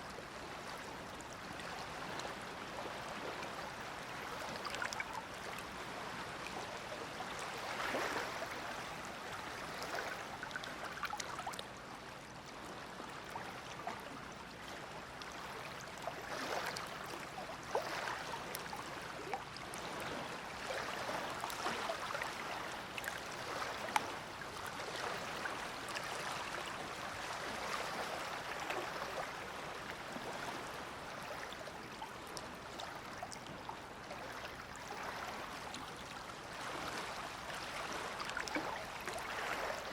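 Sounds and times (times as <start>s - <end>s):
small waves lapping at shore: 0.0s - 39.9s.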